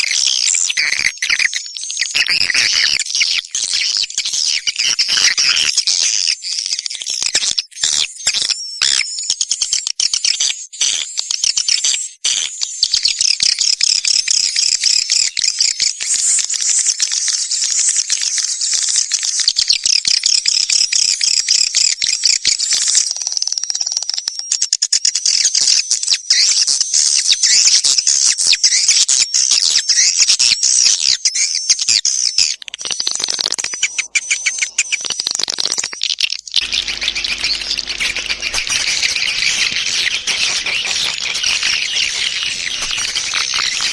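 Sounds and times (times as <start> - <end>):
swiftlet twittering chirps: 32.4 - 43.9
rapid clicks: 32.6 - 43.9.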